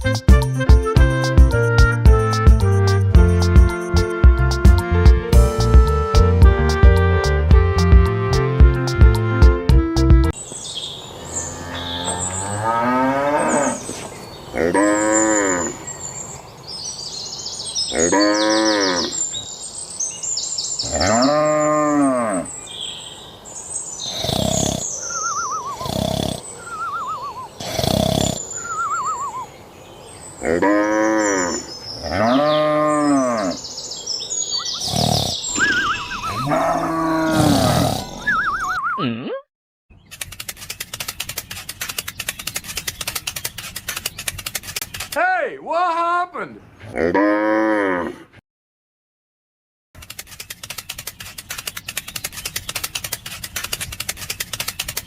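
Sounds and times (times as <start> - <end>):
cattle mooing: 11.3 - 13.8, 35.6 - 38.3, 46.9 - 48.2
high-pitched chirping: 25.0 - 27.6, 28.2 - 29.5, 34.5 - 36.8, 37.8 - 39.1.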